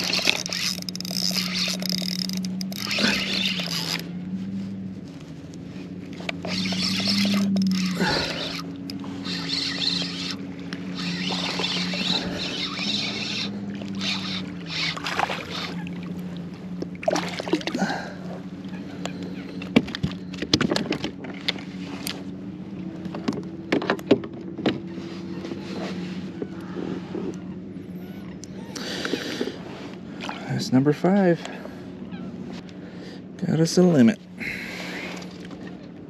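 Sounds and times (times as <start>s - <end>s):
low motor hum: 0.0s - 36.0s
splashy clicks: 6.2s - 16.2s.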